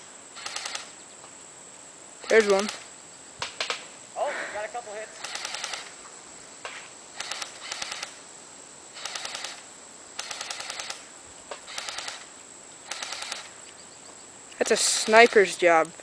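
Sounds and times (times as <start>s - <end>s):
airsoft rifle firing bursts: 5.2s - 5.9s, 7.2s - 8.2s, 9.0s - 9.6s, 10.2s - 13.5s.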